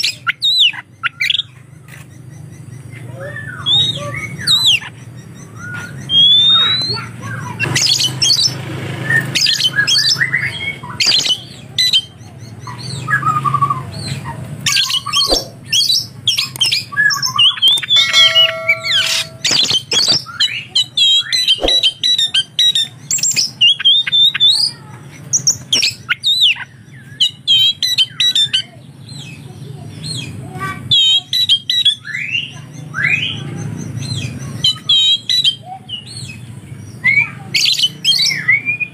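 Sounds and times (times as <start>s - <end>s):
bird singing chirps and whistles: 0.0s - 1.6s, 2.3s - 24.8s, 30.9s - 38.9s
harsh bird squawks: 0.0s - 24.8s.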